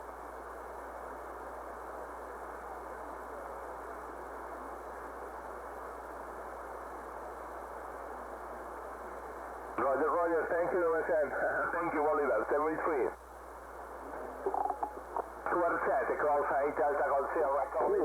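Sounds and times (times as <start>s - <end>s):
radio static hiss: 0.0s - 18.0s
low hum: 13.8s - 15.8s.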